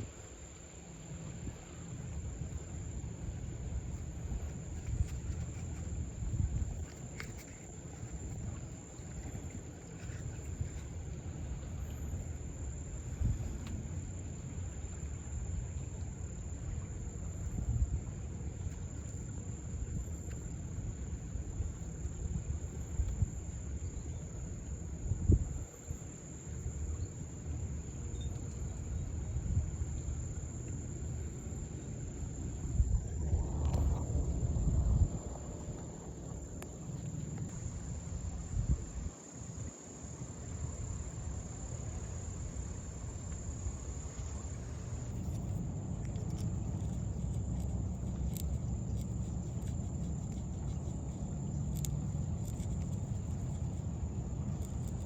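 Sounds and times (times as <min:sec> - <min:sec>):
insects trilling: 0:00.0 - 0:55.0
rustling noise: 0:03.9 - 0:11.2
low rumbling noise: 0:31.1 - 0:39.0.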